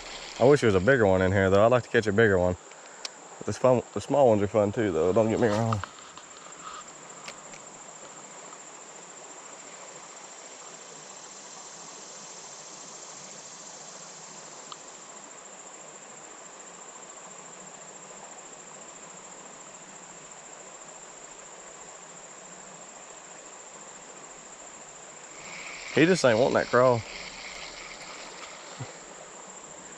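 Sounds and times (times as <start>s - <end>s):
background hiss: 0.0s - 29.9s
insects trilling: 0.0s - 29.9s.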